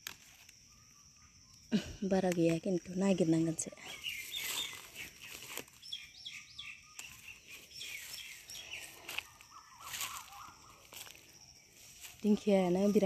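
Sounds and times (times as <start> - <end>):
foliage rustling: 1.8 - 13.0
bird chirping: 3.2 - 11.9.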